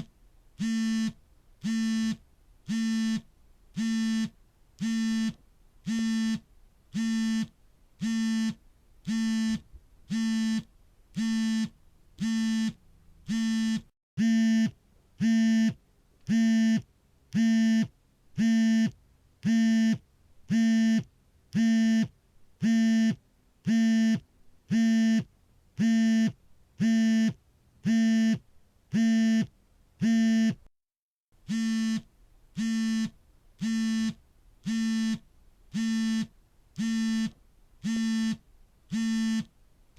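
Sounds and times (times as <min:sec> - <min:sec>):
phone vibration buzzing: 0:00.0 - 0:30.7, 0:31.4 - 0:39.5.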